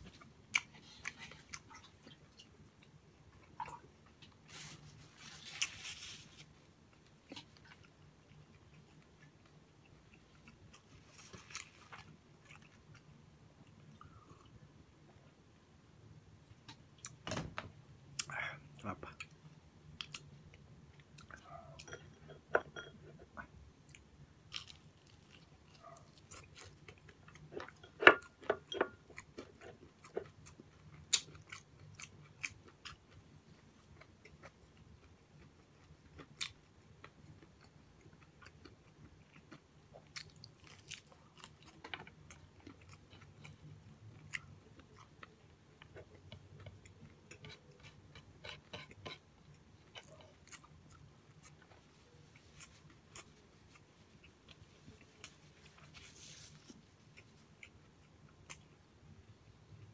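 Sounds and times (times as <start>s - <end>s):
faint low hum: 0.0s - 59.9s
crunching fried food: 24.0s - 27.3s, 34.0s - 45.2s.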